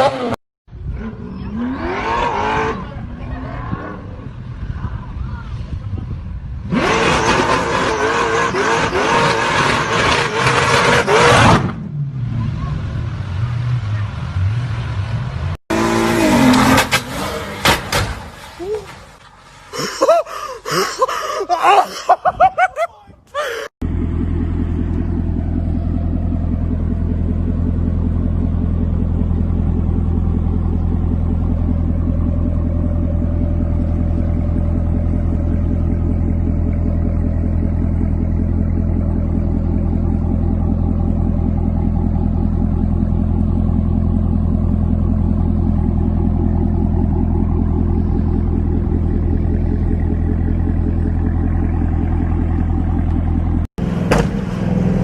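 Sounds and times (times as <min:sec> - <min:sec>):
car engine idling: 0:22.3 - 0:55.0.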